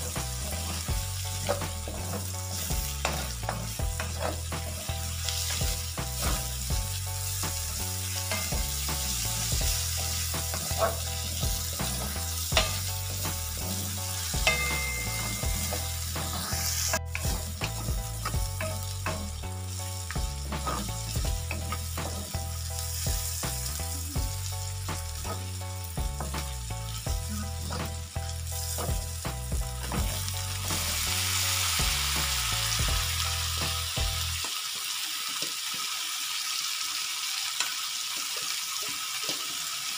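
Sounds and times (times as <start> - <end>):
wooden spatula scraping wok: 0.0 - 23.7
background music: 0.0 - 34.4
food sizzling in wok: 0.0 - 39.9.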